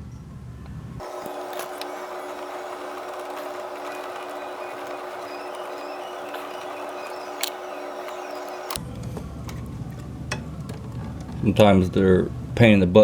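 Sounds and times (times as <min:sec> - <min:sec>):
machine hum and whirr: 0:00.1 - 0:12.6
steady tones: 0:01.0 - 0:08.8.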